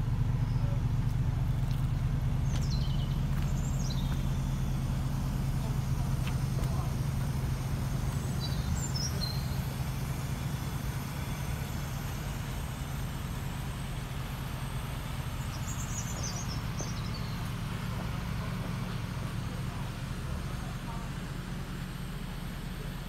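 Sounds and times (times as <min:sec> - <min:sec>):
car engine idling: 0:00.0 - 0:23.0
birds chirping: 0:02.3 - 0:04.4, 0:08.2 - 0:09.7, 0:15.3 - 0:17.6.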